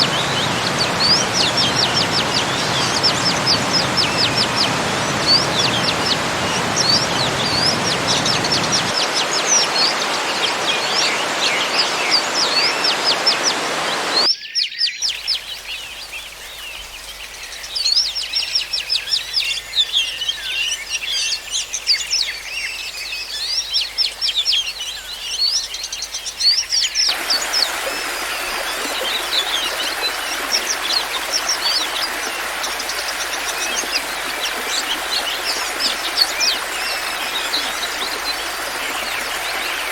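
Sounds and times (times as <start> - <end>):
waterfall rushing: 0.0 - 14.3, 27.1 - 39.9
small birds chirping: 0.0 - 39.9.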